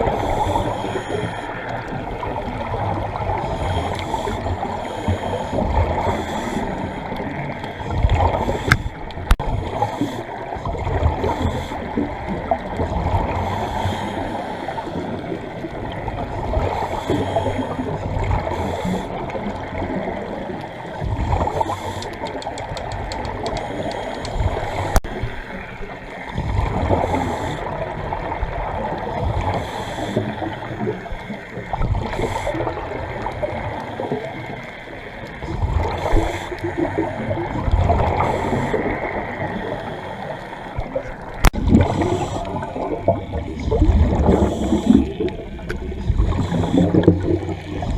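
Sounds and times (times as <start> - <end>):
underwater bubbling: 0.0 - 47.9
faint clicks: 21.4 - 25.1.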